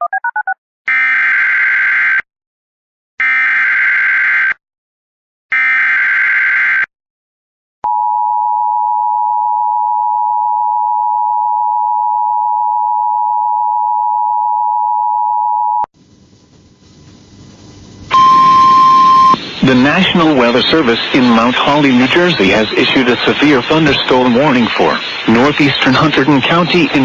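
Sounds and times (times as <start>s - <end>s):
steady alarm tone: 18.1s - 19.4s
faint radio static: 18.1s - 27.0s.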